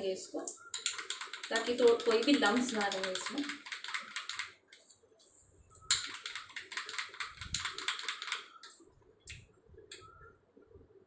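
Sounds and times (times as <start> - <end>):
whisk clicking against bowl: 0.8 - 4.5.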